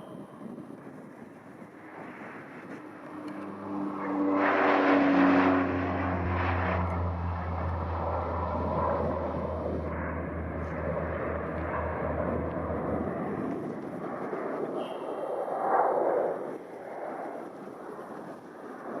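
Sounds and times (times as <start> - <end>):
jet engines rushing: 0.0 - 19.0
low engine rumble: 1.8 - 14.8.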